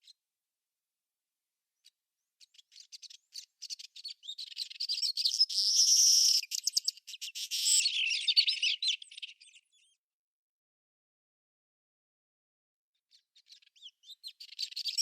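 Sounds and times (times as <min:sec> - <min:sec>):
small birds chirping and twittering: 0:00.0 - 0:00.2, 0:01.8 - 0:10.0, 0:13.0 - 0:15.0.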